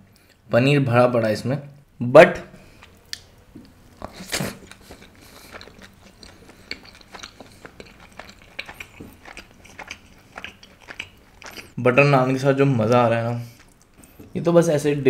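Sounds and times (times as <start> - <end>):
soft chewing clicks: 2.6 - 11.8, 12.9 - 14.3
loud bite into bread: 4.0 - 11.8.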